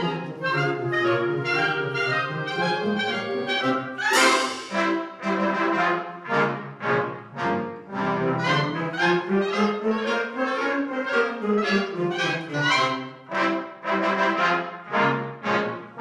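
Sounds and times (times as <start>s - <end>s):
wind band playing: 0.0s - 16.0s
brass accented chords: 0.4s - 9.6s, 13.2s - 16.0s.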